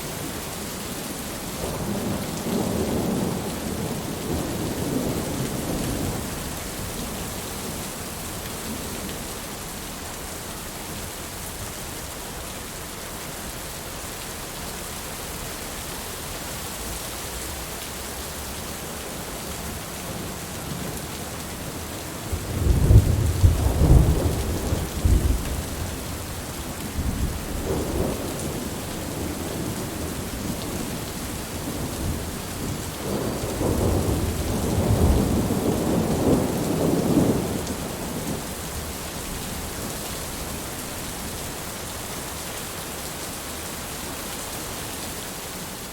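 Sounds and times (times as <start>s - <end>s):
heavy rain hissing: 0.0s - 45.9s
thunder rumbling: 19.5s - 38.8s.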